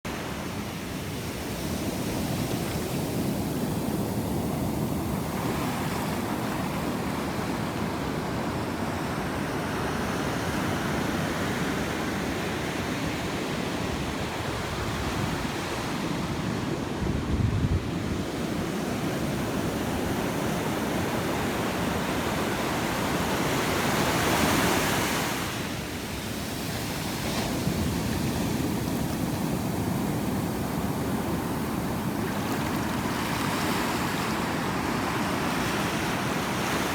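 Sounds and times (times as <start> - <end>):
ocean waves breaking on beach: 0.1 - 36.9
wind buffeting microphone: 14.5 - 21.4.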